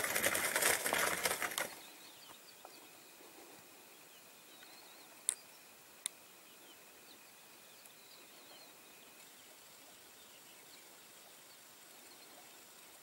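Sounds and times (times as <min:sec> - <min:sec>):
bird wings flapping: 0:00.0 - 0:01.8
faint chirps: 0:00.9 - 0:13.0.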